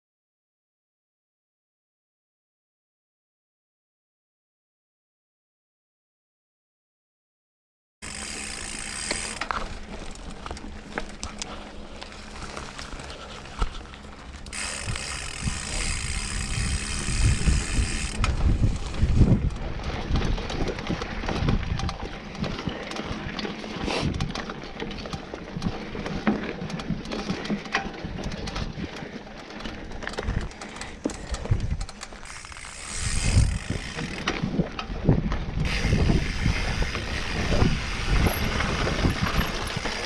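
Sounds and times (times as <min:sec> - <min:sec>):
chain and frame rattling: 0:08.0 - 0:34.5
bicycle freehub ratcheting: 0:08.0 - 0:35.0, 0:35.6 - 0:40.0.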